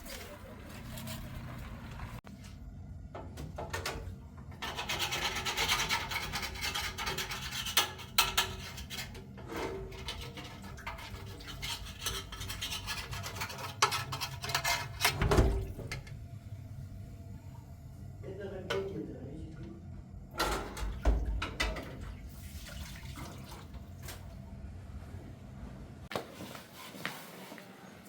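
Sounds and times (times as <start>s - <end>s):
rough scraping and rubbing: 8.5s - 15.2s.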